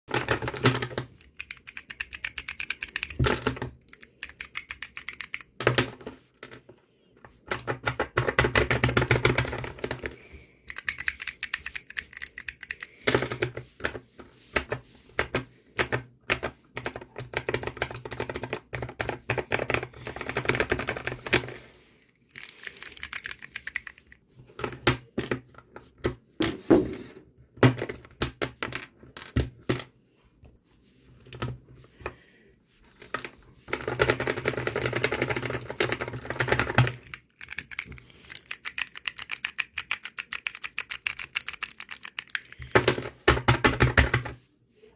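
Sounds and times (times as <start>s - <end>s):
mechanical keyboard clicking: 0.1s - 5.5s, 10.7s - 12.9s, 22.4s - 24.2s, 33.8s - 42.7s.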